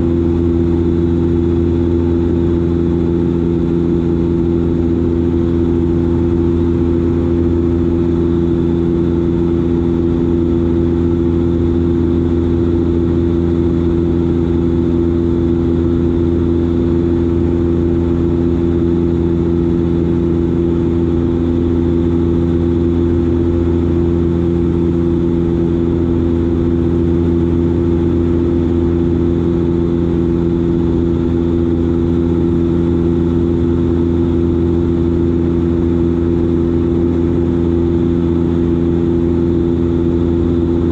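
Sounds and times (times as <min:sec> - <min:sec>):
turboprop engines droning in flight: 0:00.0 - 0:40.9.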